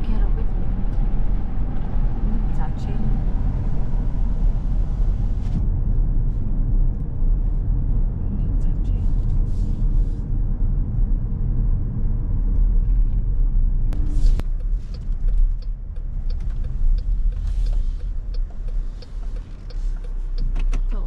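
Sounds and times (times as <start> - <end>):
car driving rumble inside cabin: 0.0 - 21.0.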